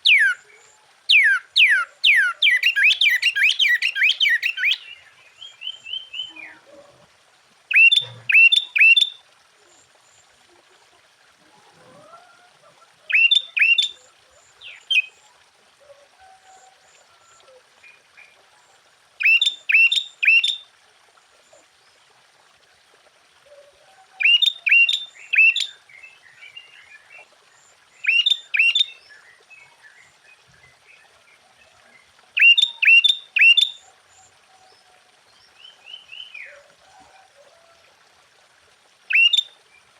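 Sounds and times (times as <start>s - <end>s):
bulbul singing sharp phrases: 1.1s - 6.6s, 7.7s - 9.1s, 13.1s - 13.9s, 28.0s - 29.0s, 39.1s - 39.4s.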